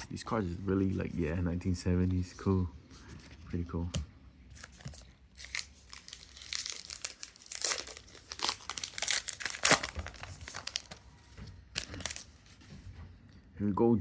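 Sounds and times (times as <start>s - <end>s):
plastic wrapper crinkling: 4.5s - 12.6s.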